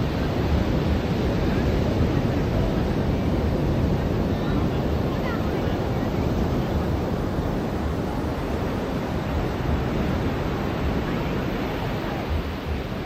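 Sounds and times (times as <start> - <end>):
ocean surf washing onto beach: 0.0 - 13.0.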